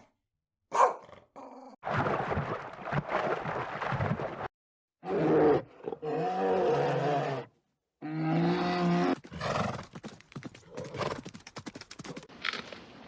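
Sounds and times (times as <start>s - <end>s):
crackling and clicking: 9.9s - 12.8s.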